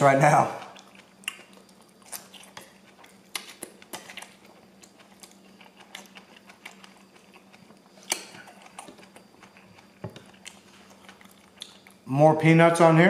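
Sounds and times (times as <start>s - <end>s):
chewing noodles: 0.5s - 12.1s.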